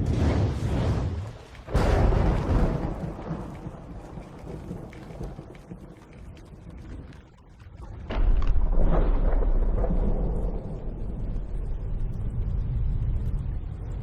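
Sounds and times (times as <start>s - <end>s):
crackling patter: 1.2s - 9.9s.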